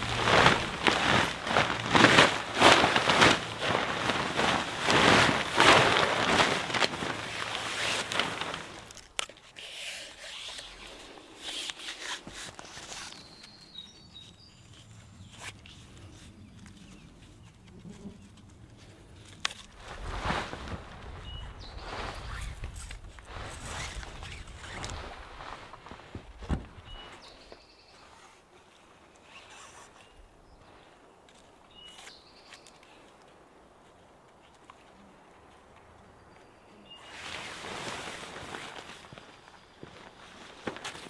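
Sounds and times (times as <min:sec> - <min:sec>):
tarp flapping and rustling: 0:00.0 - 0:09.2, 0:10.1 - 0:28.6, 0:36.9 - 0:41.0.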